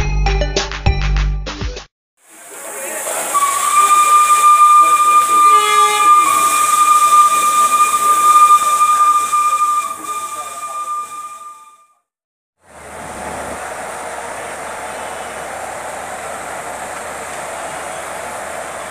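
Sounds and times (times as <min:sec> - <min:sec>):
hissing air: 0:02.3 - 0:11.6
train horn blast: 0:02.4 - 0:11.8.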